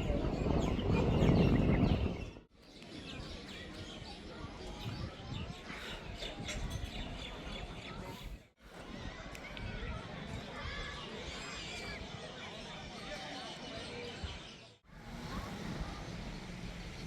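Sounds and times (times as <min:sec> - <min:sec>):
small birds chirping: 0:00.0 - 0:08.6.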